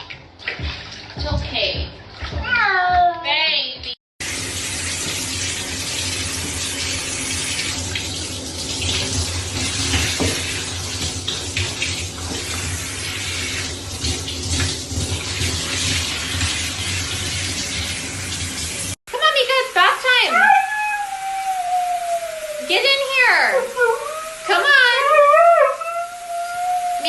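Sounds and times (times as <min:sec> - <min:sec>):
tap water running into sink: 0:04.2 - 0:19.0.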